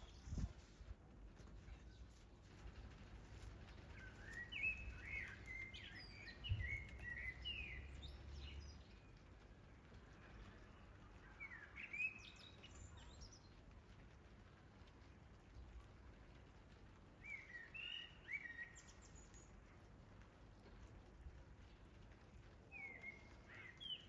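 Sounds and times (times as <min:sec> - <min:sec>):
songbird chirping: 0:03.3 - 0:13.7, 0:17.1 - 0:24.0.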